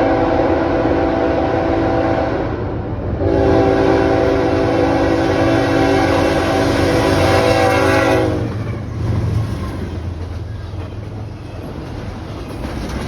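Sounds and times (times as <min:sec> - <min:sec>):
locomotive air horn: 0:00.0 - 0:02.6, 0:03.2 - 0:08.6
train rumbling: 0:00.0 - 0:13.0.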